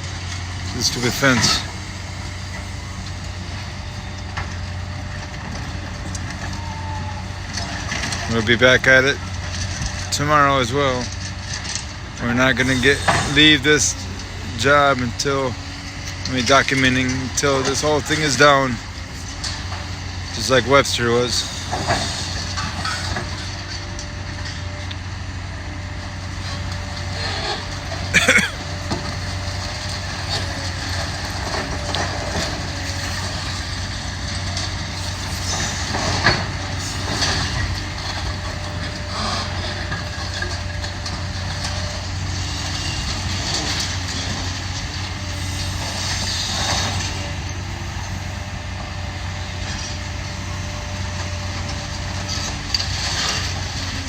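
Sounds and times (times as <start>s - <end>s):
excavator diesel engine running: 0.0s - 54.0s
debris clanking and crashing: 0.7s - 1.8s, 7.4s - 24.7s, 26.2s - 47.2s.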